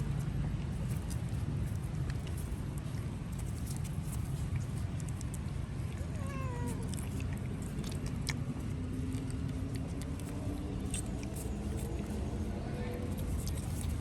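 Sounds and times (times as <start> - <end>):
low background rumble: 0.0 - 14.0
puppy whimpering cry: 5.9 - 7.3.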